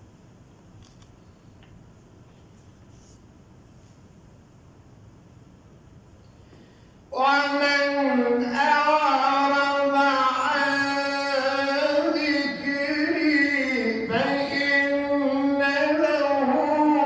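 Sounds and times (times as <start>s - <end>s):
man chanting melodic recitation: 7.1s - 17.0s.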